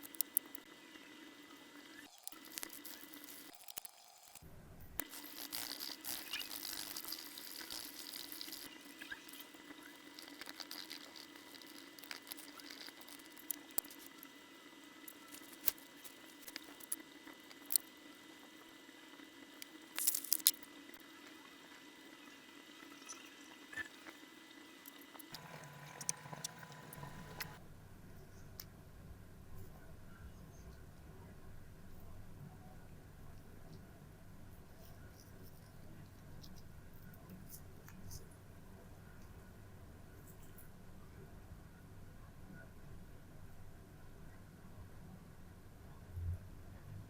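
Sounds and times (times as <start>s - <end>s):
faint running water: 24.5s - 27.6s.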